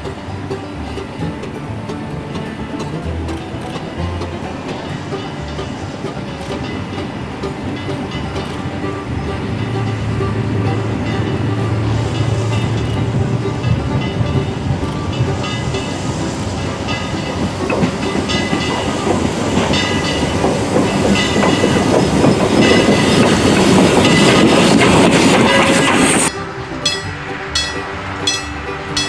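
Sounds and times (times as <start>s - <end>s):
train wheels clacking on rails: 0.0s - 29.0s.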